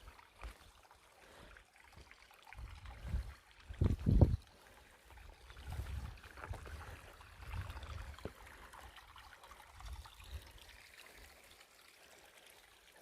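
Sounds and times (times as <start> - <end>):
footsteps on forest trail: 0.0 - 8.5.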